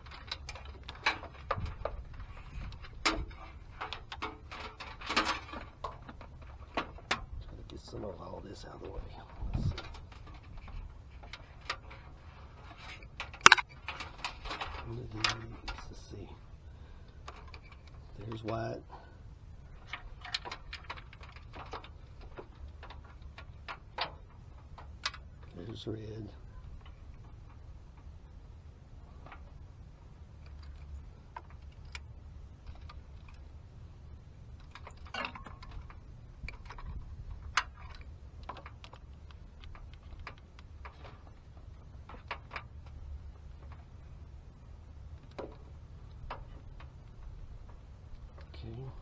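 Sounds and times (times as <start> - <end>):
wiring connectors clicking: 13.4 - 13.6.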